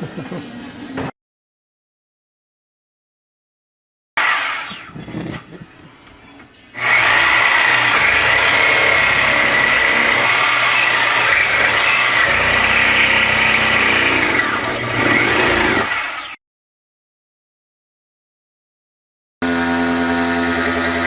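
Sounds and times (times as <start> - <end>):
machine motor whining: 6.8 - 16.4, 19.4 - 21.0.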